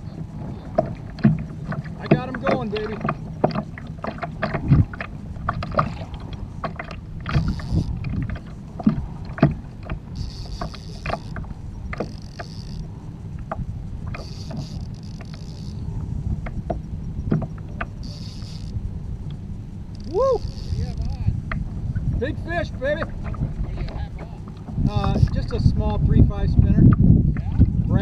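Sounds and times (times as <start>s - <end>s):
gear knocking on hull: 0.0s - 28.0s
water slapping against kayak hull: 0.0s - 28.0s
high hissing whir: 17.8s - 21.4s.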